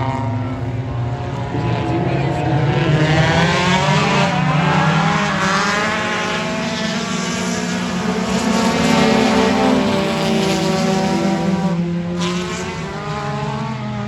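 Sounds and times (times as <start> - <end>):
race car engine revving: 0.0 - 14.0.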